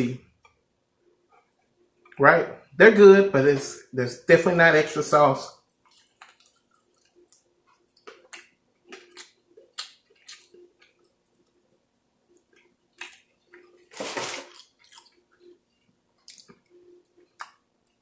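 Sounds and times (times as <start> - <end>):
person chewing: 5.6 - 18.0
wet mouth clicks and lip smacks: 16.3 - 18.0.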